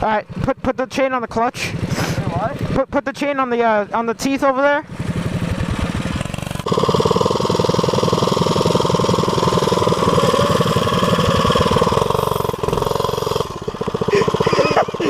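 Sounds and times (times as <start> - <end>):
mini bike engine running: 4.9 - 15.0.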